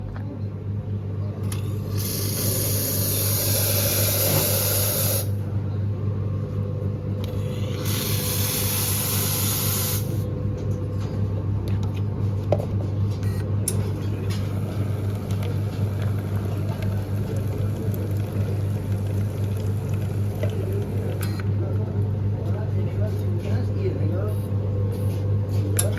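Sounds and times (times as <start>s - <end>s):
espresso machine humming: 1.4s - 10.4s, 13.2s - 23.1s
steam hissing: 1.9s - 5.3s, 7.7s - 10.2s.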